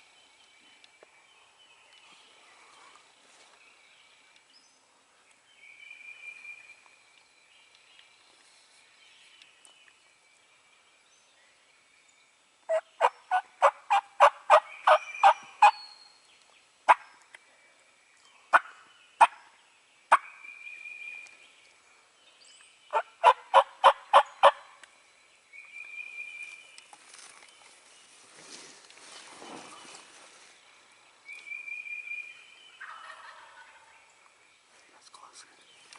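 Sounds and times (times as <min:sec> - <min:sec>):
turkey calling: 0:32.8 - 0:33.8.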